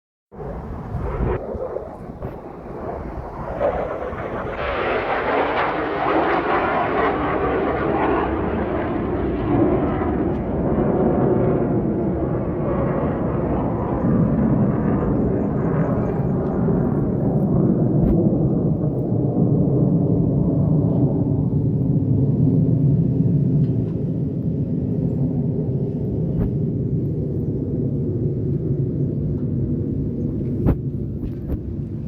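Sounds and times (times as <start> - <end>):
fighter jet flying past: 0.3 - 32.0.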